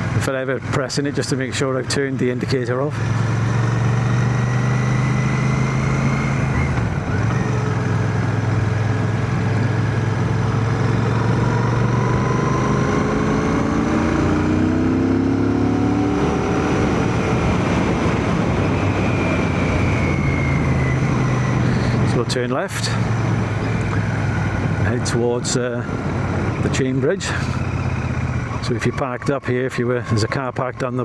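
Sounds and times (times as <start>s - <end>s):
road noise: 0.0s - 31.0s
motorcycle engine running: 2.9s - 29.7s
wind noise: 10.9s - 22.4s.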